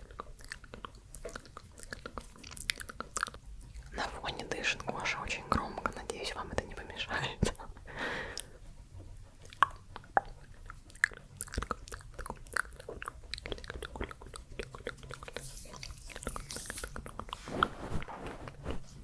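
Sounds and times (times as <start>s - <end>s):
wet mouth clicks and smacks: 0.0s - 6.8s, 9.4s - 17.4s.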